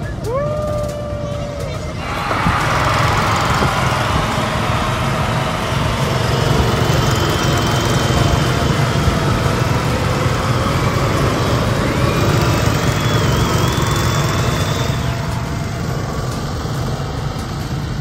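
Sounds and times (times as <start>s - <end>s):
go-kart engines running: 0.0s - 18.0s.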